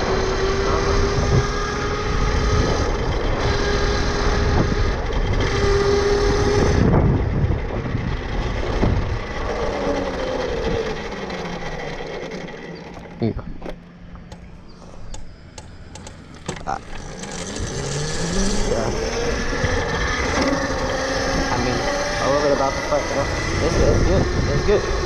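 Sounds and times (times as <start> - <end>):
rushing wind noise: 0.0 - 11.2, 17.0 - 25.0
electric motor whining: 0.0 - 25.0.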